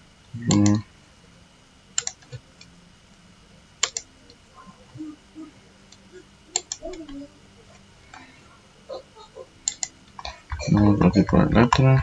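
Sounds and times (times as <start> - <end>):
computer mouse clicks: 0.4 - 0.8, 2.0 - 2.7, 3.8 - 4.4, 5.9 - 7.2, 9.6 - 10.9
faint ticks: 3.8 - 4.4, 5.9 - 8.4, 9.6 - 10.8.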